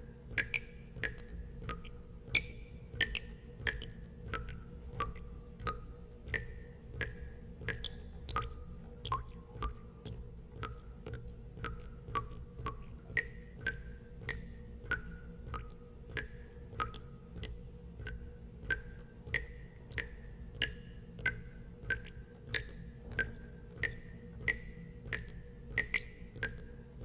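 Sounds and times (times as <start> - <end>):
water drops plinking: 11.6 - 26.7.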